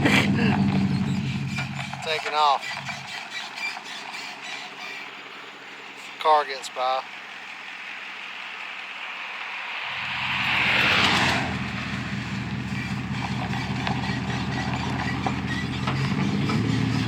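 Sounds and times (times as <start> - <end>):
engine idling: 0.0 - 17.0
vehicle driving past: 7.3 - 17.0.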